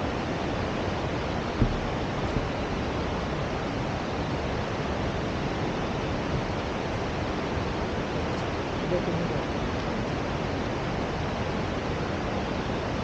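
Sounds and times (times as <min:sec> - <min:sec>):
fast-flowing water rushing: 0:00.0 - 0:13.0.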